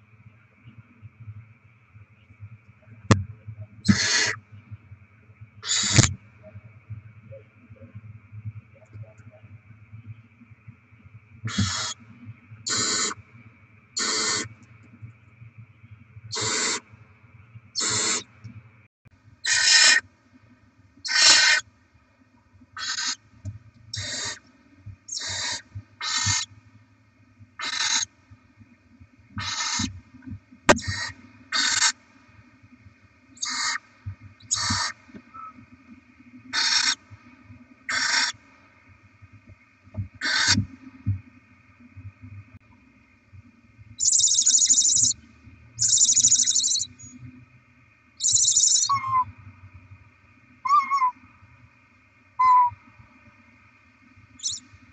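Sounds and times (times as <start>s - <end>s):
owl nestlings hissing: 3.9s - 4.4s, 5.6s - 6.1s, 11.5s - 12.0s, 12.7s - 13.2s, 14.0s - 14.5s, 16.3s - 16.8s, 17.8s - 18.2s, 19.4s - 20.0s, 21.1s - 21.6s, 22.8s - 23.2s, 23.9s - 24.4s, 25.1s - 26.5s, 27.6s - 28.1s, 29.4s - 29.9s, 30.8s - 31.9s, 33.4s - 33.8s, 34.5s - 34.9s, 36.6s - 37.0s, 37.9s - 38.3s, 40.2s - 40.6s, 44.0s - 45.1s, 45.8s - 46.9s, 48.2s - 49.2s, 54.4s - 54.6s.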